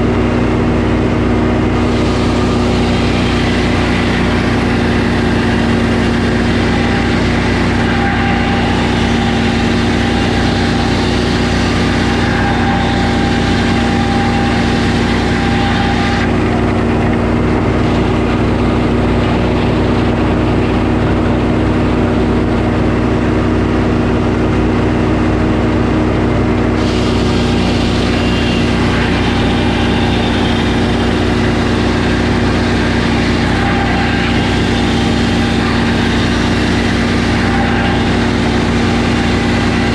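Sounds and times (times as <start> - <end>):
sawmill engine running: 0.0 - 39.9
high hiss: 26.8 - 39.9.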